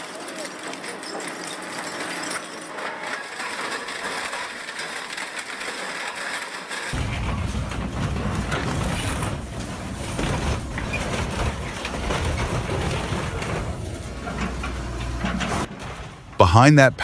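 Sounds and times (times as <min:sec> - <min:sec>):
shredder crushing scrap metal: 0:00.0 - 0:16.4
deep machine rumble: 0:07.0 - 0:16.4.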